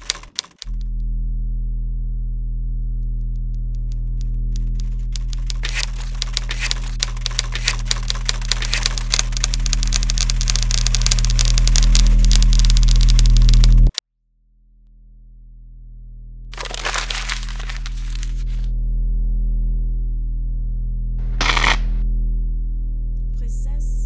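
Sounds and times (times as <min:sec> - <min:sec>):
manual typewriter keys clattering: 0:00.0 - 0:00.7, 0:04.5 - 0:13.9
steady low drone: 0:00.6 - 0:24.0.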